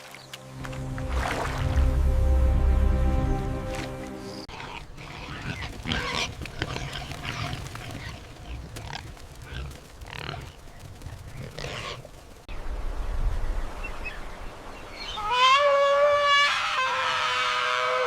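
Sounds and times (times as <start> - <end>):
background music held chord: 0.4 - 4.5.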